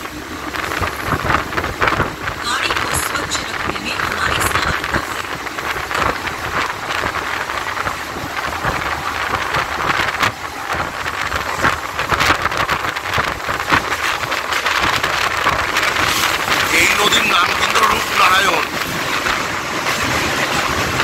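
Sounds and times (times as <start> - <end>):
rush of wind: 0.0 - 21.0.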